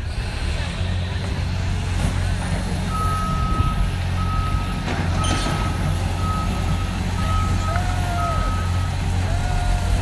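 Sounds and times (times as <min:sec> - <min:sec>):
machine engine rumbling: 0:00.0 - 0:10.0
reversing alarm beeping: 0:02.9 - 0:09.2.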